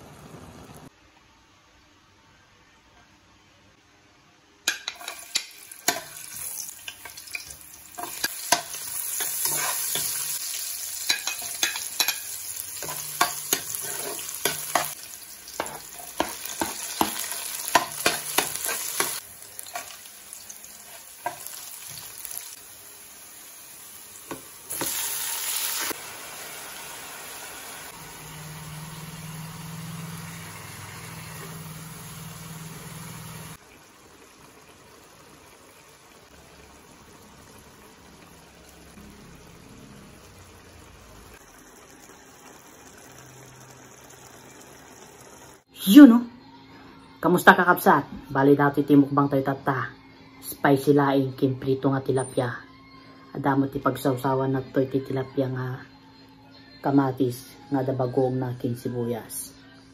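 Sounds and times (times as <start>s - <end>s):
onions sizzling in hot oil: 4.7s - 45.7s.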